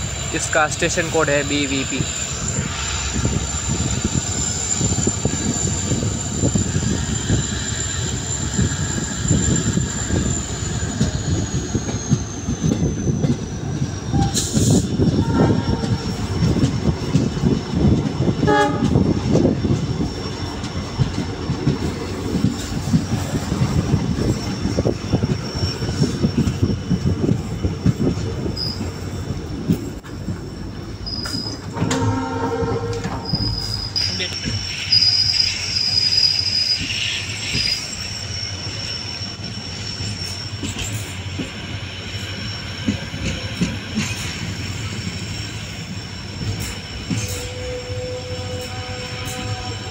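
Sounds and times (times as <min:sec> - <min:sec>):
high wheel squeal: 0:00.0 - 0:17.0, 0:22.2 - 0:29.4, 0:31.0 - 0:49.9
train wheels clattering: 0:01.3 - 0:49.9
train horn: 0:15.2 - 0:16.0, 0:18.4 - 0:19.0, 0:31.7 - 0:33.4, 0:47.2 - 0:49.9.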